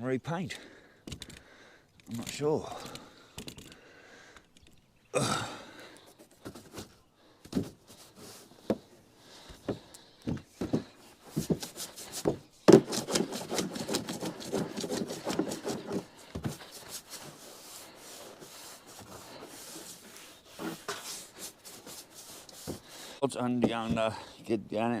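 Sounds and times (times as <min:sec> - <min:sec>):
rubbing and scraping on roof: 0:06.0 - 0:24.4
knocks and creaks on roof: 0:06.2 - 0:17.4, 0:23.6 - 0:24.2.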